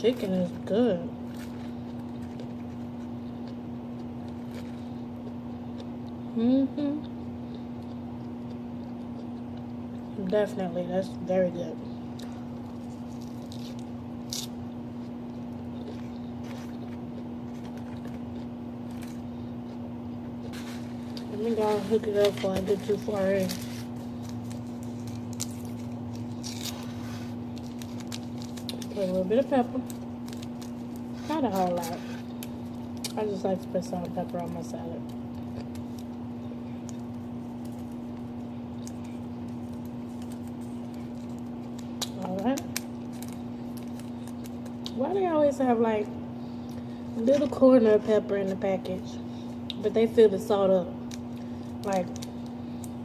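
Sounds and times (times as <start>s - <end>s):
low electrical hum: 0.0s - 53.0s
chewing salad: 1.3s - 6.3s, 7.0s - 10.6s, 12.1s - 45.0s
paper packet rustling and ticking: 27.5s - 34.8s.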